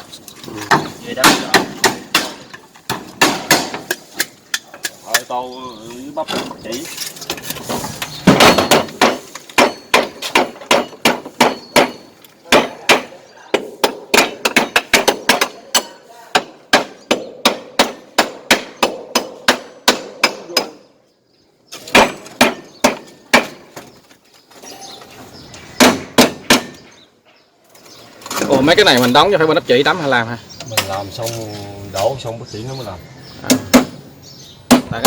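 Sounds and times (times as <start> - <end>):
hammer driving nails: 0.6 - 5.0, 7.4 - 13.1.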